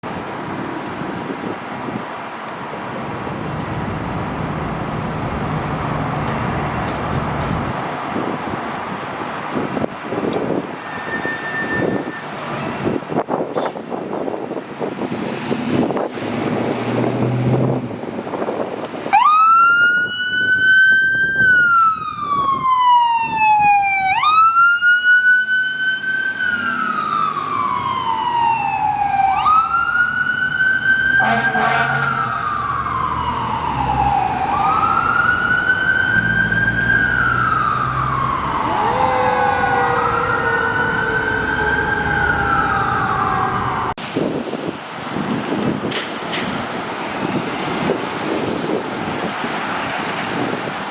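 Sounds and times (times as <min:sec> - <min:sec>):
fire engine siren wailing: 0:04.6 - 0:44.0
lower-pitched siren wail: 0:10.8 - 0:13.0, 0:19.0 - 0:44.0.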